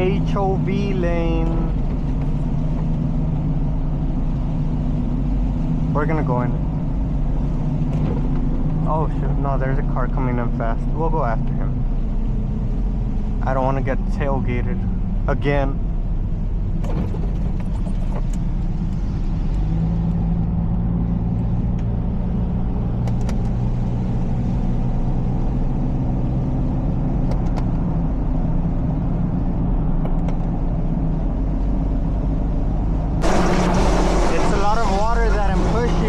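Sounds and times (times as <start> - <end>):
car engine low drone: 0.0 - 36.0
tyres hissing on wet road: 33.2 - 36.0.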